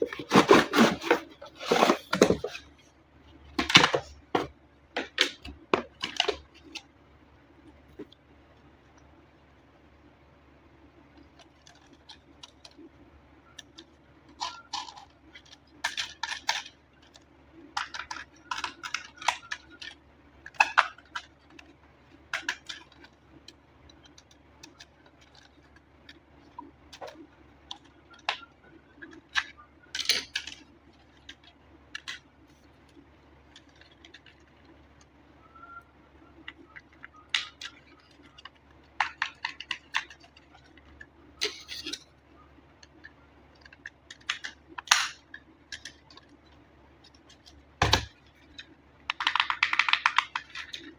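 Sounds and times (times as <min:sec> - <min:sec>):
packaging rustling: 0:00.0 - 0:02.7
hands clicking and tapping toy: 0:49.0 - 0:50.9.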